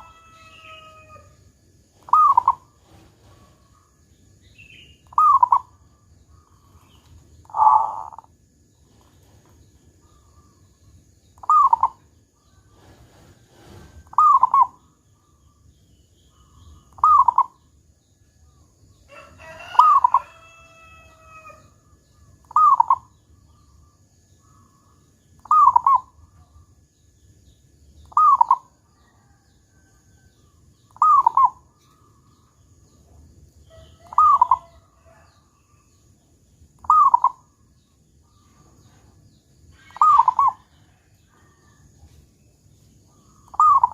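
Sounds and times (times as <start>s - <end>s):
dove cooing: 2.0s - 3.9s, 5.1s - 5.8s, 7.4s - 8.3s, 11.4s - 12.0s, 12.8s - 14.8s, 16.9s - 17.6s, 22.4s - 23.1s, 25.4s - 26.1s, 28.1s - 29.4s, 31.0s - 31.6s, 33.8s - 35.0s, 36.8s - 37.4s, 39.8s - 41.5s, 43.4s - 43.9s
bird call with several pitches: 2.1s - 2.6s, 25.4s - 26.1s, 28.1s - 28.7s, 33.7s - 34.8s, 36.8s - 37.4s, 39.8s - 40.6s, 43.5s - 43.9s.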